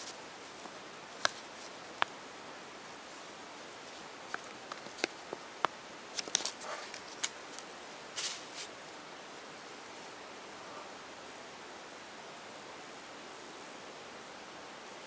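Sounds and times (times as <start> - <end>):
short rustles: 8.2 - 8.8.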